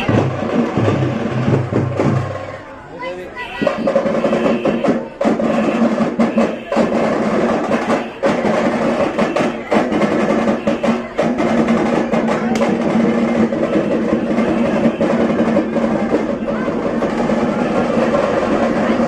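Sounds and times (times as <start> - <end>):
frame drums beaten with sticks: 0.0 - 2.7, 3.5 - 19.0.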